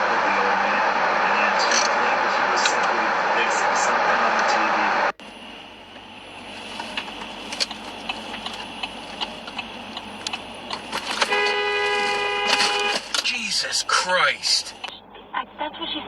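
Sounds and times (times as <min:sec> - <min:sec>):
road traffic: 0:00.0 - 0:16.0
car horn: 0:10.9 - 0:14.6.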